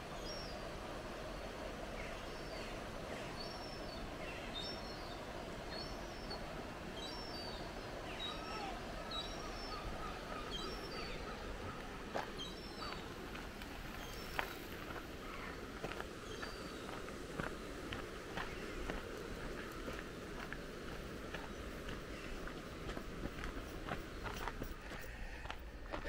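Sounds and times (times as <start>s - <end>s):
water rushing over weir: 0.0s - 24.5s
songbird chirping: 1.3s - 26.0s
footsteps on path: 12.1s - 26.0s.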